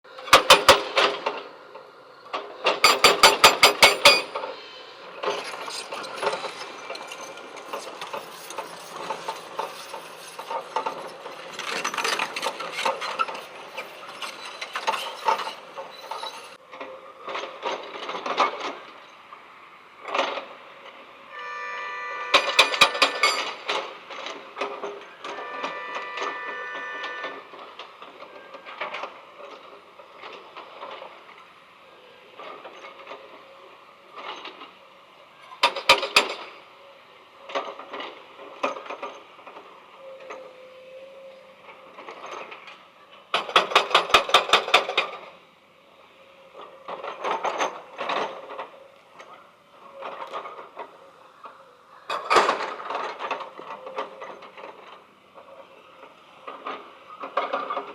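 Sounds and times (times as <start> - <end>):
rapid clicking and rattling: 2.8 - 4.4.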